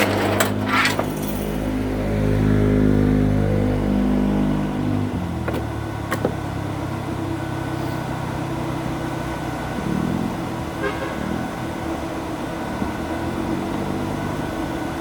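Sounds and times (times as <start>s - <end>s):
wood splitter engine running: 0.0s - 11.0s.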